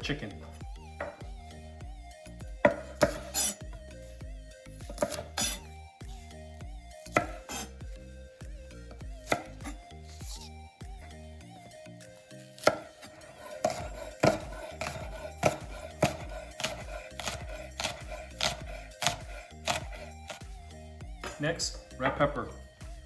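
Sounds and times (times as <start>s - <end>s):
knife chopping on cutting board: 1.0s - 1.2s, 2.6s - 3.7s, 4.8s - 5.7s, 7.1s - 7.7s, 9.2s - 10.5s, 12.5s - 20.4s.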